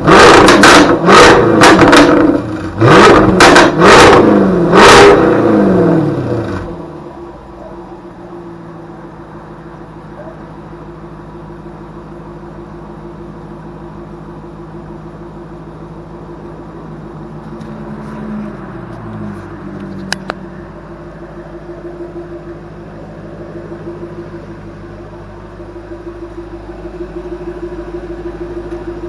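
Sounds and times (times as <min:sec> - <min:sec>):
car engine idling: 0:00.0 - 0:29.0
sharp exhaust crack: 0:00.1 - 0:04.2.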